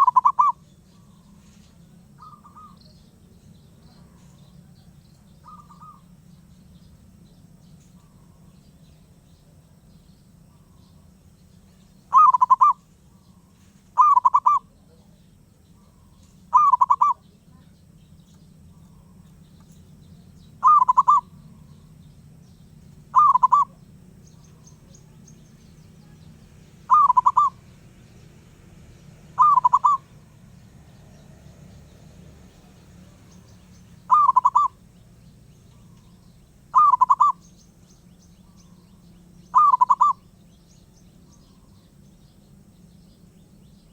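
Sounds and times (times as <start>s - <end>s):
dove trilling coos: 0.0s - 3.2s, 3.8s - 6.6s, 12.0s - 17.7s, 18.6s - 28.0s, 29.2s - 42.0s
faint steady low hum: 0.0s - 43.9s.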